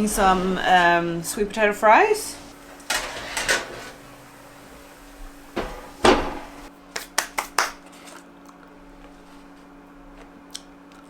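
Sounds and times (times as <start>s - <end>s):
loud clattering knock: 2.8s - 6.7s.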